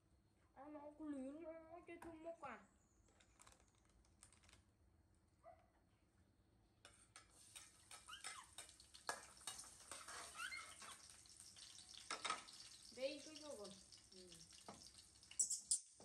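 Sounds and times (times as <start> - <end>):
metal spatula scraping a pan: 6.9 - 11.2
food sizzling in a wok: 7.2 - 16.0
baby monkeys squeaking: 10.2 - 10.9, 15.4 - 15.8.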